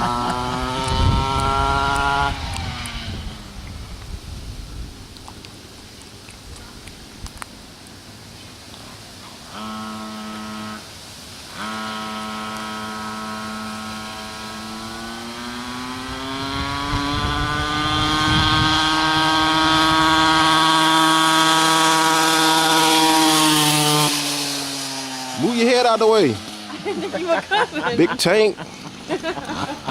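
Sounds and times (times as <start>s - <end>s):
motorcycle engine running: 0.0s - 4.9s, 11.5s - 27.7s.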